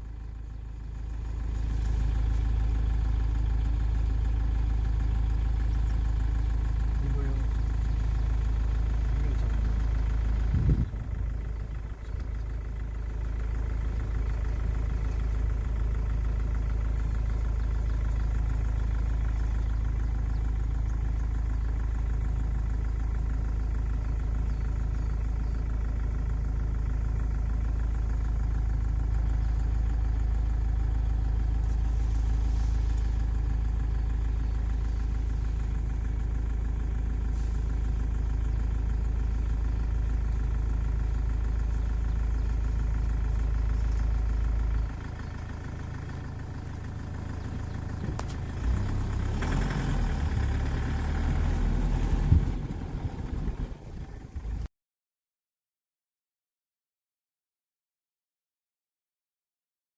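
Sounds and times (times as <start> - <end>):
low mechanical hum: 7.0 - 17.6, 29.0 - 37.8, 51.5 - 54.7.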